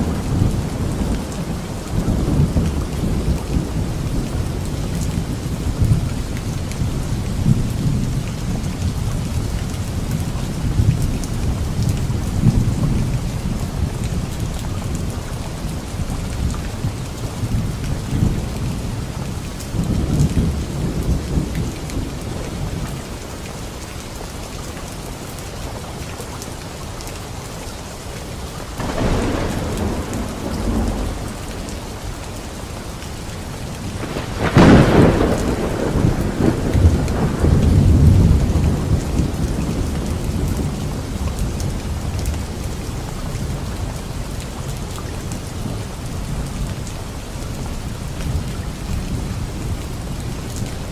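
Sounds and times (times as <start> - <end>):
light rain on leaves: 0.0 - 50.9
rolling thunder: 28.8 - 44.1.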